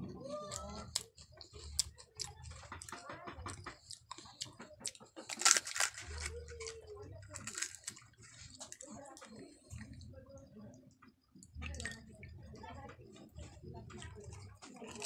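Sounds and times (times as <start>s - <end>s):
chewing and wet mouth sounds: 0.3s - 10.2s, 11.0s - 12.4s, 13.1s - 15.0s
crisp crackles: 5.2s - 9.0s.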